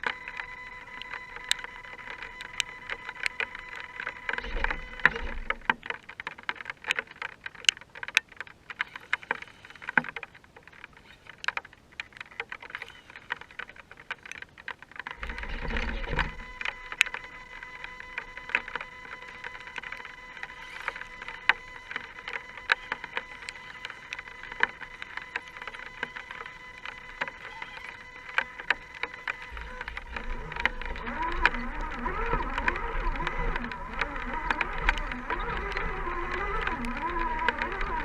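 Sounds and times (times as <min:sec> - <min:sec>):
steady high whine: 0:00.0 - 0:06.1, 0:15.1 - 0:38.0
clicks and ticks: 0:00.0 - 0:38.0.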